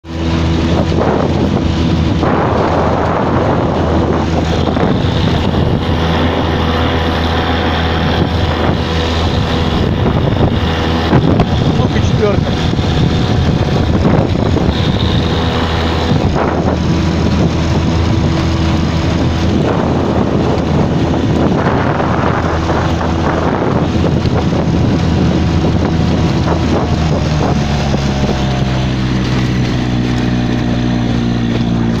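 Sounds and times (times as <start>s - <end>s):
outboard motor running: 0.0s - 32.0s
water noise: 0.0s - 32.0s
wind noise on microphone: 0.0s - 32.0s.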